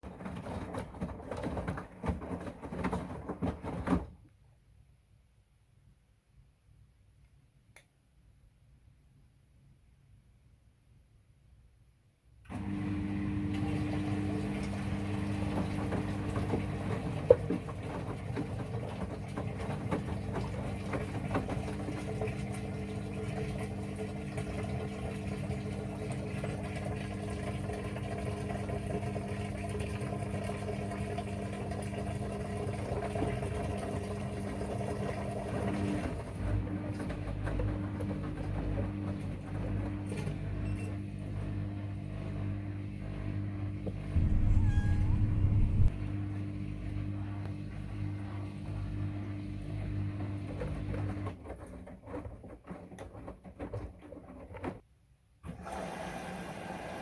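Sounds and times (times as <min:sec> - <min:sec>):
washing machine motor hum: 0:00.0 - 0:04.1, 0:12.5 - 0:51.8.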